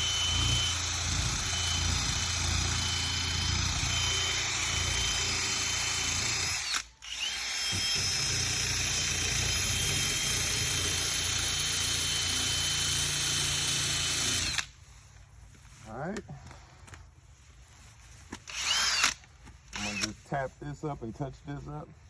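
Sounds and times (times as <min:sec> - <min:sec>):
power sander on sheet metal: 0:00.0 - 0:06.7.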